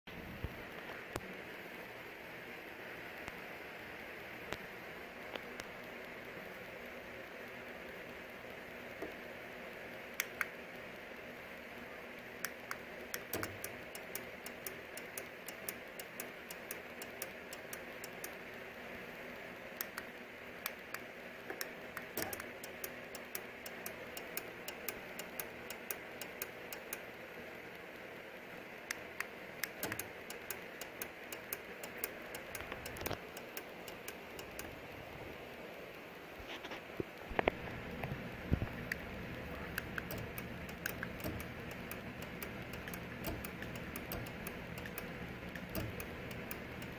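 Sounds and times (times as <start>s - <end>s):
rapid irregular clicks: 4.5s - 46.9s
garage door opener humming: 12.6s - 18.4s, 29.0s - 34.8s, 37.6s - 46.9s.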